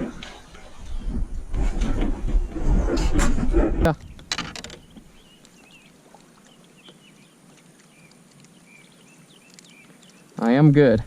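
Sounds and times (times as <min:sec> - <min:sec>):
faint bird chirps: 0:04.8 - 0:10.6.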